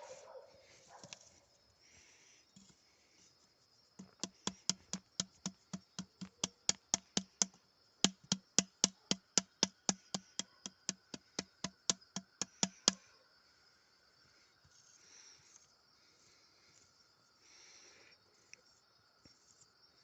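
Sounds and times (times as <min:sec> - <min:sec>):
rapid sharp knocking: 0:04.0 - 0:13.0.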